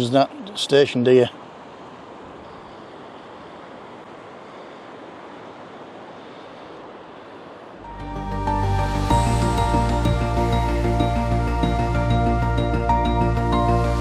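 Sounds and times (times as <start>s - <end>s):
wind on the shore: 0.0s - 13.2s
sea surf: 0.0s - 14.0s
background music: 7.8s - 14.0s.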